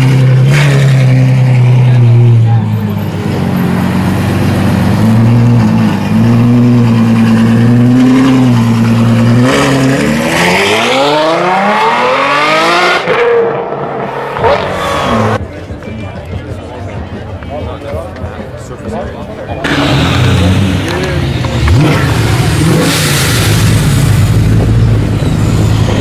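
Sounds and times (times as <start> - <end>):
car engine revving hard: 4.4 - 15.4, 19.6 - 25.2.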